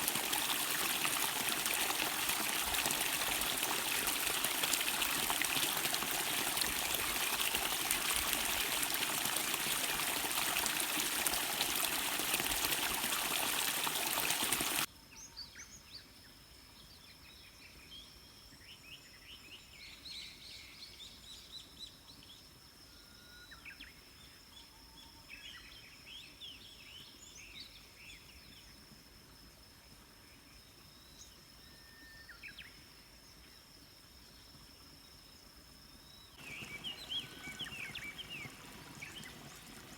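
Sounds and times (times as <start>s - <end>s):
small birds chirping: 0.0s - 14.9s, 36.4s - 39.9s
stream water rushing: 0.0s - 14.9s, 36.4s - 39.9s.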